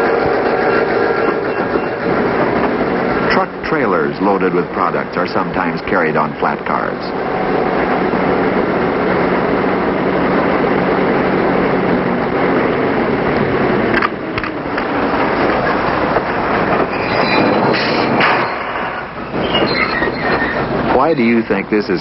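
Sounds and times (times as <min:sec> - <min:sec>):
high-pitched train squeals: 0:00.0 - 0:02.6, 0:16.8 - 0:21.2
freight train rumbling: 0:00.0 - 0:22.0.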